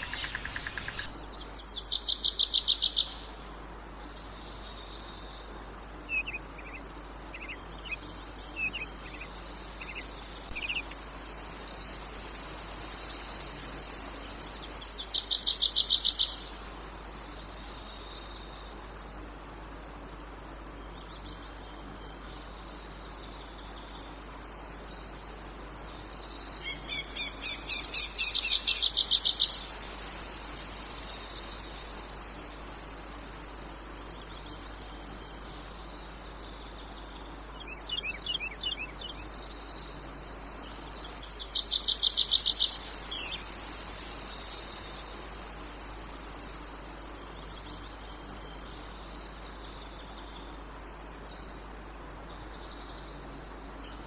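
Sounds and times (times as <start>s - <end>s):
insects shrilling: 0.0s - 3.4s, 5.8s - 19.8s, 24.1s - 49.9s
low pulsed insect trilling: 0.0s - 54.0s.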